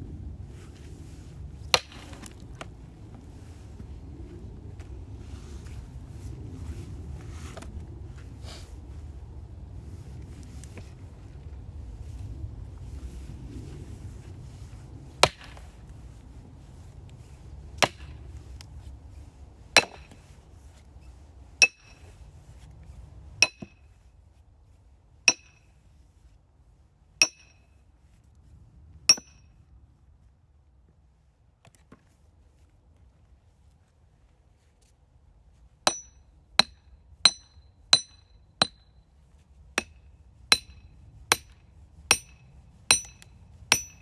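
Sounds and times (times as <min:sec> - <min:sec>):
metallic ring: 0:43.8 - 0:44.0.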